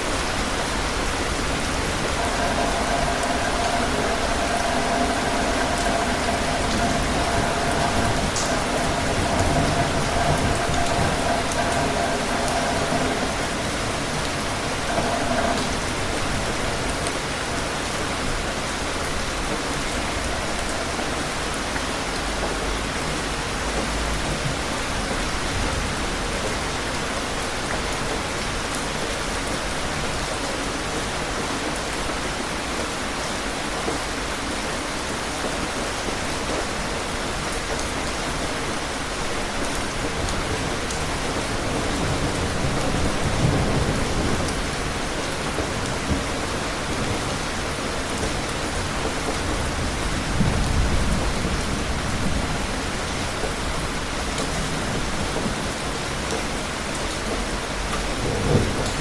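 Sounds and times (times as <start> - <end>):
heavy rain falling: 0.0 - 59.0
low rumble: 0.1 - 21.0.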